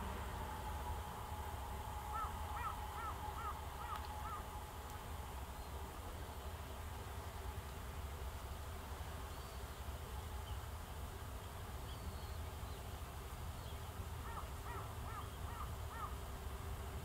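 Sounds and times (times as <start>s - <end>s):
steady low outdoor rumble: 0.0s - 17.0s
bird calling arched notes: 0.5s - 4.8s
faint high chirps of small birds: 7.2s - 16.4s.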